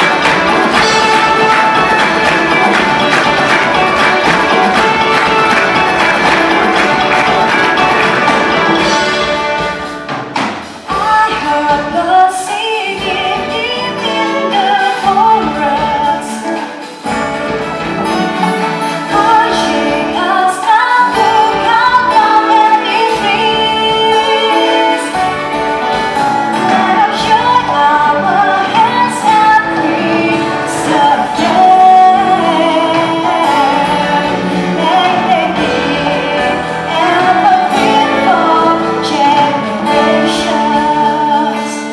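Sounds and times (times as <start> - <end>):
instrumental accompaniment: 0.0 - 41.9
women singing: 10.9 - 16.7, 19.0 - 25.4, 26.6 - 41.9.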